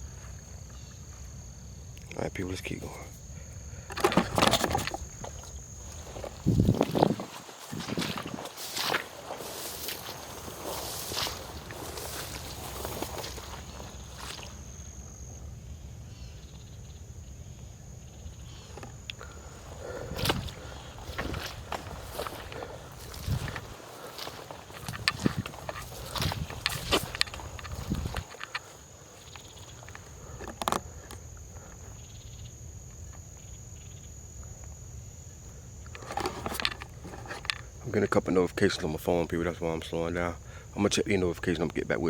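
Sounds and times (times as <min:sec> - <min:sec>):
high-pitched insect trill: 0:00.0 - 0:42.0
short crunch: 0:03.9 - 0:14.6, 0:18.7 - 0:31.2, 0:35.9 - 0:37.7
footsteps on a trail: 0:04.0 - 0:14.7, 0:19.1 - 0:31.2, 0:35.9 - 0:37.6.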